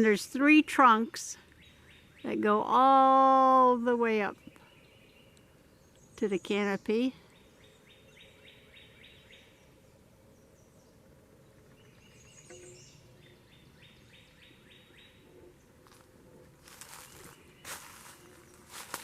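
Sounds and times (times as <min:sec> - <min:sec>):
faint woodland ambience: 0:00.0 - 0:19.0
songbird singing: 0:00.0 - 0:19.0
soft rustles or footsteps: 0:15.8 - 0:19.0.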